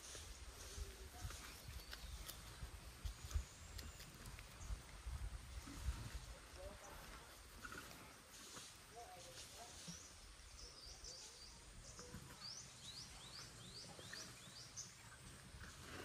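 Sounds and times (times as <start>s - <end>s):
bird chirping: 9.8s - 15.8s.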